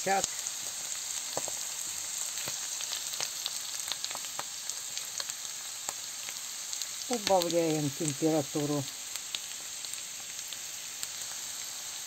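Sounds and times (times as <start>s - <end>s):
food frying in a pan: 0.0s - 12.0s
small crackles: 0.0s - 12.0s.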